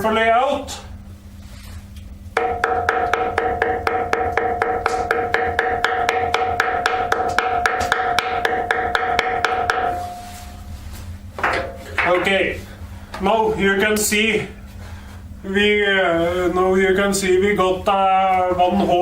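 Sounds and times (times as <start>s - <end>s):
hammer tapping on gasket sheet: 2.4s - 10.7s, 11.4s - 12.4s
steady ringing note: 2.4s - 13.0s.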